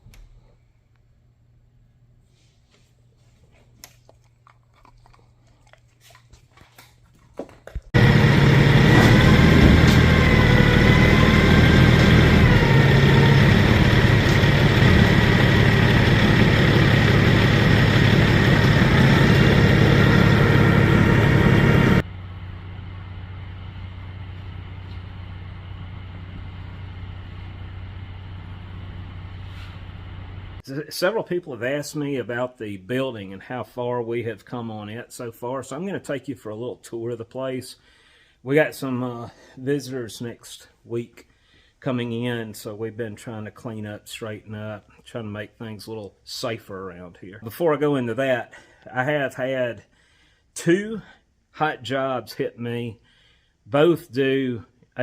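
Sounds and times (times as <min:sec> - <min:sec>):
loud machine running: 0:08.0 - 0:29.4.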